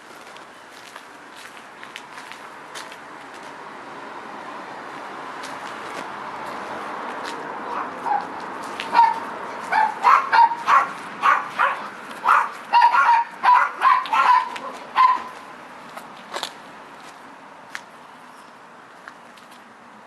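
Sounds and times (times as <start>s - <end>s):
dog barking: 7.7s - 8.3s, 8.9s - 15.4s.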